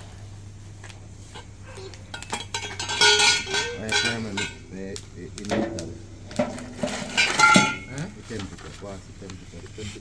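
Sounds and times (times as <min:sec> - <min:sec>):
voices: 0:01.2 - 0:10.0
dishes and metal utensils clinking: 0:02.1 - 0:04.7, 0:05.5 - 0:08.1.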